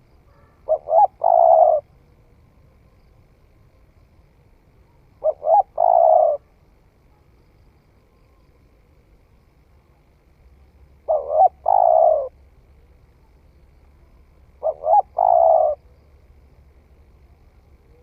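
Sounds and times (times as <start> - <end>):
dove cooing: 0.0 - 1.9, 5.2 - 6.5, 11.0 - 12.4, 14.6 - 16.0.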